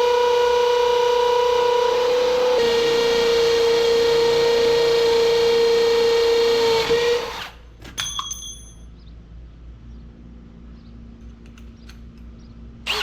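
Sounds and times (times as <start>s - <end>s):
power drill whining: 0.0s - 7.6s
short metallic clink: 7.9s - 9.0s.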